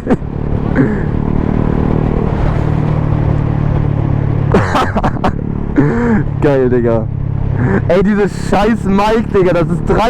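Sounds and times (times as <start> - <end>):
wind rush: 0.0 - 6.5
motorcycle engine cruising: 0.0 - 10.0.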